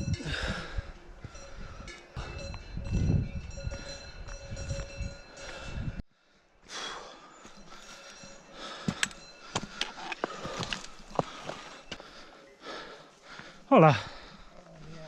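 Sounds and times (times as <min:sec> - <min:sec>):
footsteps on stony trail: 0:00.0 - 0:06.0, 0:06.6 - 0:15.0
trekking poles clicking on rock: 0:08.8 - 0:11.5.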